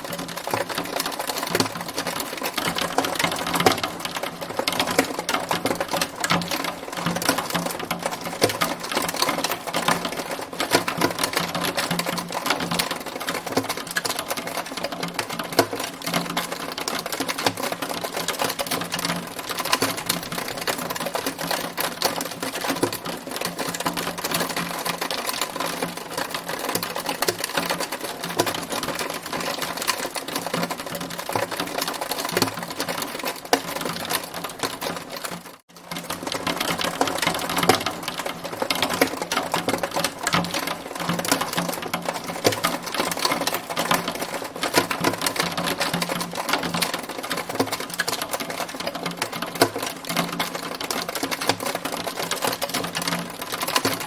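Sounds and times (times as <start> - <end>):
hail pelting a hard surface: 0.0 - 54.0.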